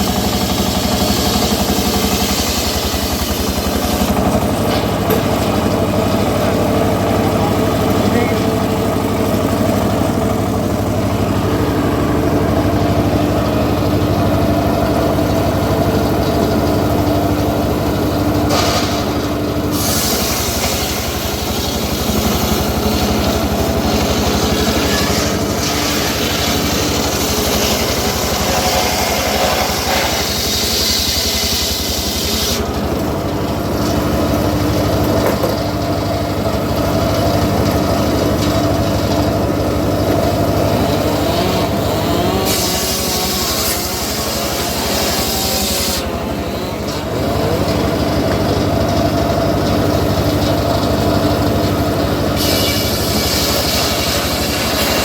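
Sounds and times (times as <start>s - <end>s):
saw blade cutting wood: 0.0s - 12.6s, 13.3s - 33.1s, 36.7s - 55.0s
sawmill engine running: 0.0s - 55.0s.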